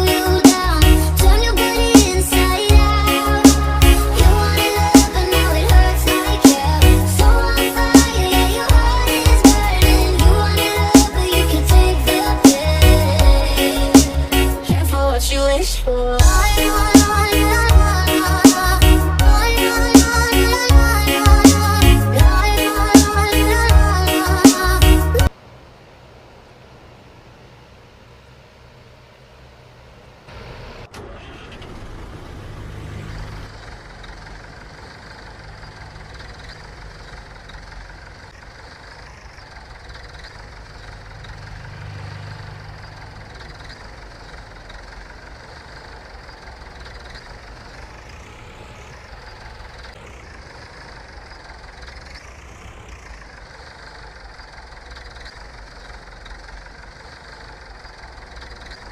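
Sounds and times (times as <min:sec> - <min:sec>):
engine running: 0:00.0 - 0:58.9
high sweeping sounds: 0:16.2 - 0:25.3.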